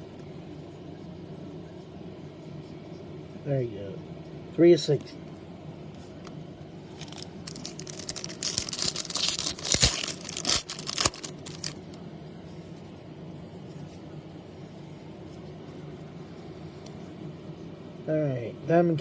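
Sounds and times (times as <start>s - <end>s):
low background hum: 0.0s - 19.0s
foil wrapper tearing and crinkling: 6.9s - 11.8s.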